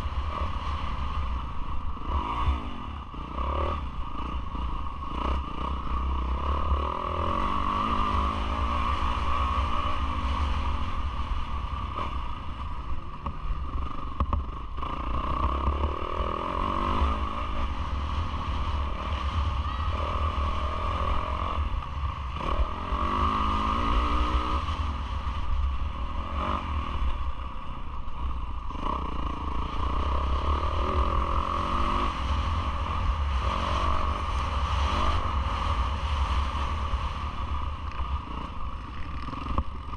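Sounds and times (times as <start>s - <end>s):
motocross engine revving: 1.9s - 10.6s, 14.8s - 24.8s.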